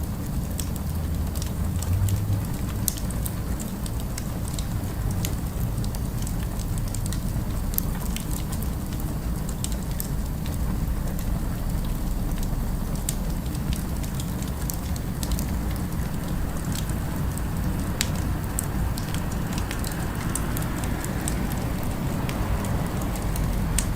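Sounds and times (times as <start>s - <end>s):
city ambience rumble: 0.0s - 23.9s
fire crackling and popping: 0.0s - 23.9s.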